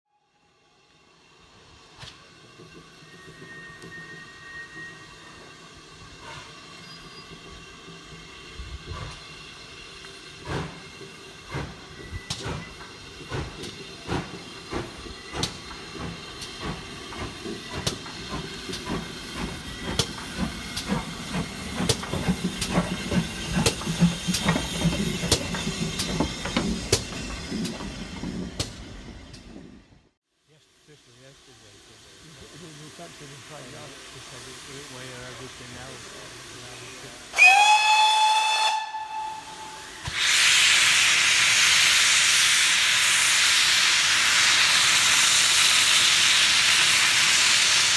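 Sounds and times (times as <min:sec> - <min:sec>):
steam hiss: 0:00.7 - 0:28.8, 0:30.5 - 0:47.9
train knocks and clanks: 0:01.8 - 0:30.0.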